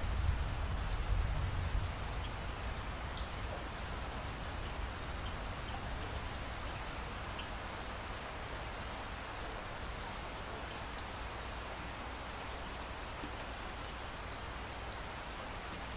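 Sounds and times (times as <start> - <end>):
steady rain hiss: 0.0 - 15.9
raindrop ticks: 2.2 - 3.8.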